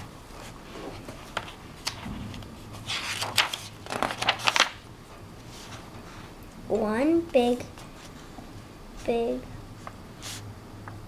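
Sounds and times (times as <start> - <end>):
book pages turning: 3.0 - 4.8.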